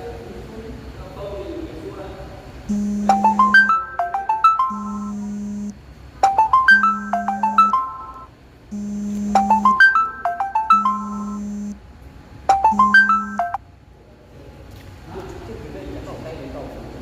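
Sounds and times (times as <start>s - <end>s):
phone ringtone melody: 2.7s - 11.8s, 12.5s - 13.6s.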